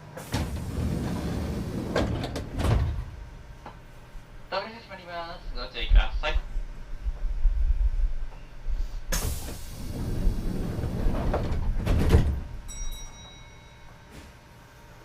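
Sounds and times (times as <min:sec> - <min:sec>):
train doors sliding shut: 0:00.0 - 0:03.9, 0:09.1 - 0:12.6, 0:14.1 - 0:14.4.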